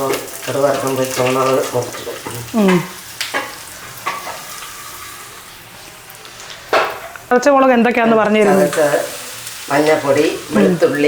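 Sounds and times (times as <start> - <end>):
grains sizzling in hot oil: 0.0 - 11.0
person speaking: 10.1 - 11.0.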